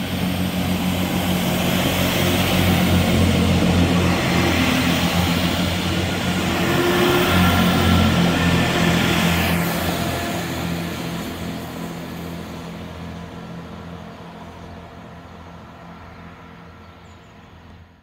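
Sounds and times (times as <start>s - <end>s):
train engine hum and rail noise: 0.0s - 18.0s.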